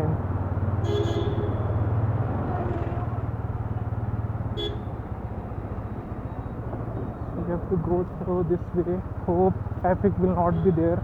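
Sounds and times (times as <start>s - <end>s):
motorcycle engine running: 2.7s - 11.0s.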